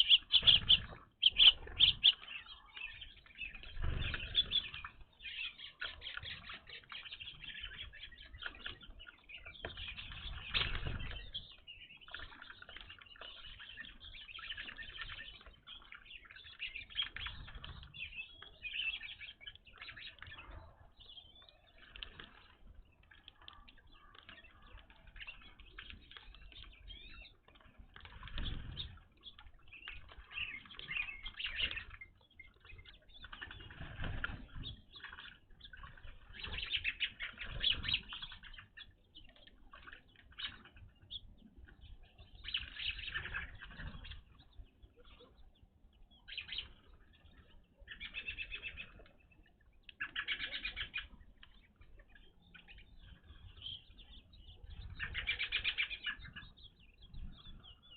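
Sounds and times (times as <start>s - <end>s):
birds chirping: 0.0s - 57.9s
bird wings fluttering: 3.6s - 4.8s, 9.8s - 11.4s, 28.0s - 29.0s, 33.2s - 34.9s.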